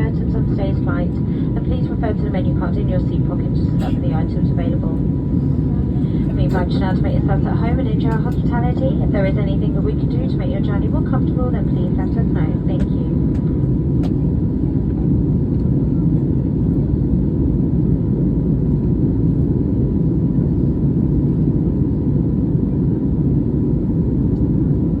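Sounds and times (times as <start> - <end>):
faint steady whine: 0.0 - 14.8
airplane cabin engine roar: 0.0 - 25.0.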